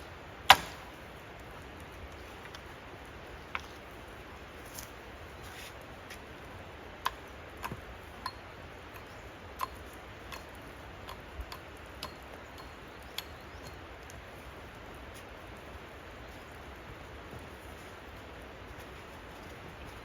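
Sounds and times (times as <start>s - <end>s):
steady low hiss: 0.0s - 20.0s
light ticks and taps: 5.8s - 15.7s.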